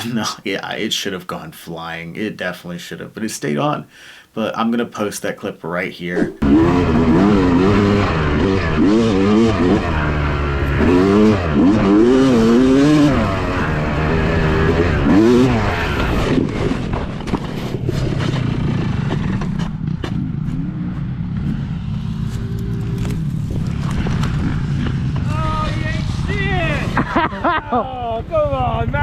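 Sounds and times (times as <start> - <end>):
dirt bike engine revving: 6.2 - 29.0.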